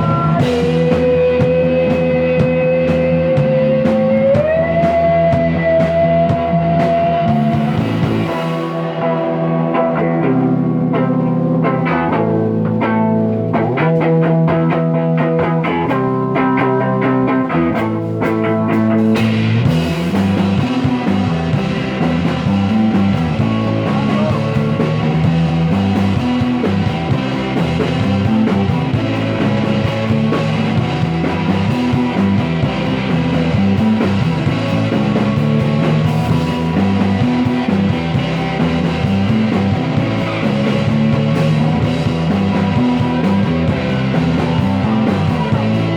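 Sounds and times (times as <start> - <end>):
psychedelic rock band with electric guitar: 0.0 - 45.9.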